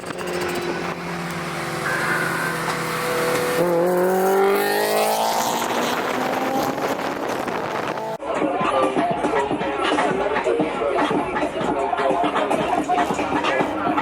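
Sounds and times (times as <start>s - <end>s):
car engine accelerating: 0.0s - 8.2s
rushing noise: 0.0s - 8.2s.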